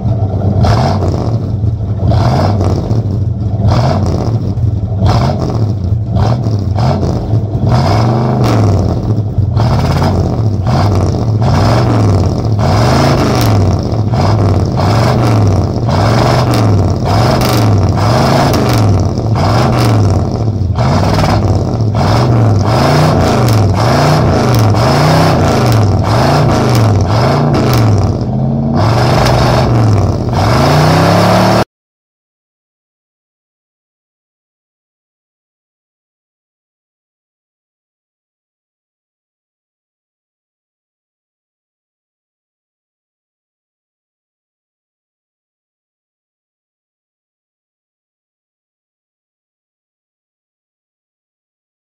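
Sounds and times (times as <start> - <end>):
car engine revving: 0.0 - 31.7.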